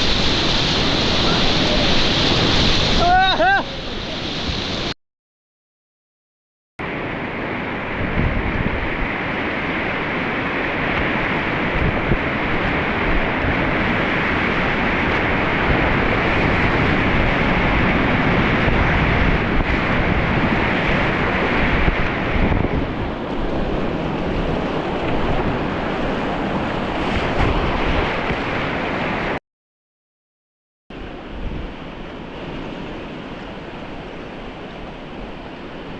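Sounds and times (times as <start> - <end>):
river rapids rushing: 0.0 - 4.9
wind buffeting microphone: 7.8 - 29.4, 31.0 - 35.9.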